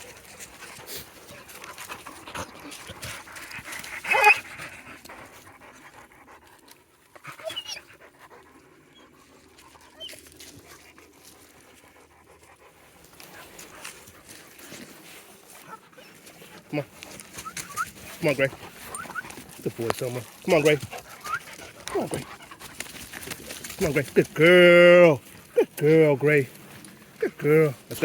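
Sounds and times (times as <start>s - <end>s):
dogs panting: 0.0s - 28.0s
dog whimpering: 4.1s - 4.4s, 7.4s - 7.9s, 17.4s - 17.9s, 18.9s - 19.4s, 20.6s - 22.3s
dog whining: 4.1s - 4.4s, 7.4s - 7.9s, 17.4s - 17.9s, 18.9s - 19.4s, 21.2s - 22.2s.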